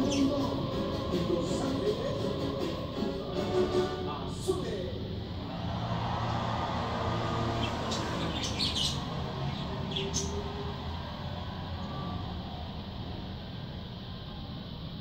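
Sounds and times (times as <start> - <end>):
bird chirping: 0.0 - 0.6, 7.4 - 10.8
low background hum: 0.0 - 15.0.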